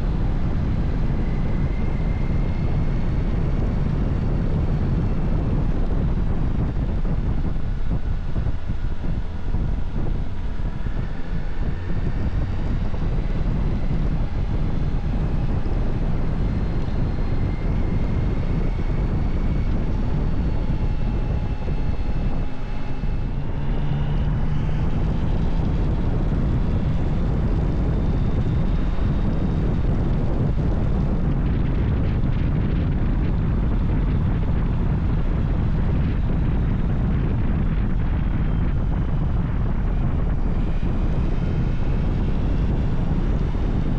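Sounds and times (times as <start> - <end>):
motorcycle engine running: 0.0 - 43.9
wind rush: 0.0 - 43.9.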